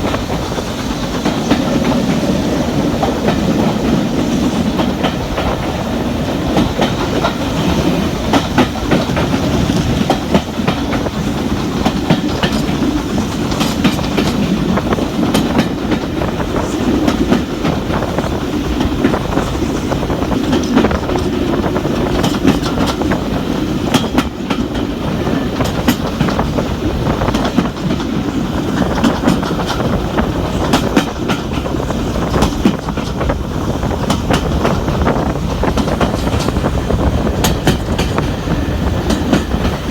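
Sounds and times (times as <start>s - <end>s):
train coaches rumbling: 0.0s - 39.9s
wheels clicking over rail joints: 0.0s - 39.9s.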